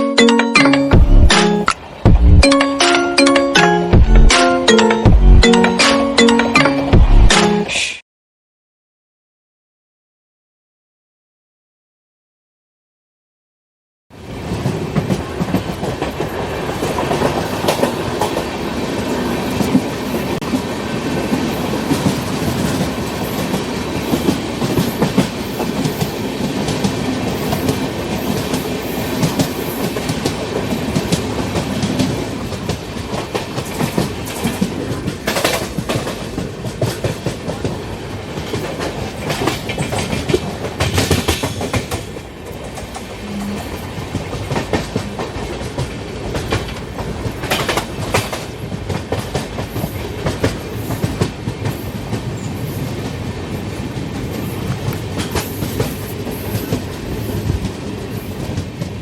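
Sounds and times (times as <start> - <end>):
train rumble: 1.0 - 2.6, 14.2 - 59.0
train wheels clattering: 21.3 - 43.2, 43.9 - 53.2, 53.9 - 59.0.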